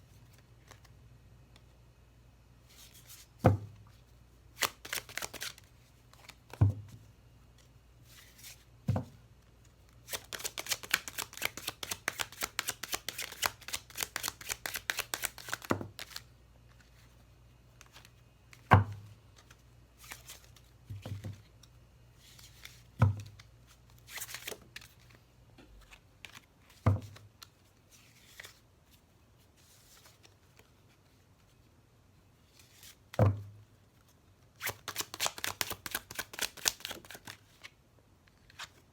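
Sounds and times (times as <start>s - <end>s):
cards shuffling: 4.6s - 6.6s, 10.0s - 17.1s, 22.2s - 25.1s, 34.6s - 37.7s.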